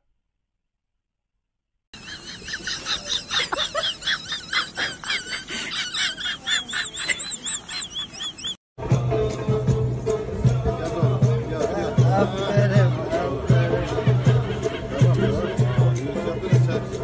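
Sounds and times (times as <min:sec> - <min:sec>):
small birds chirping: 0:02.0 - 0:08.6.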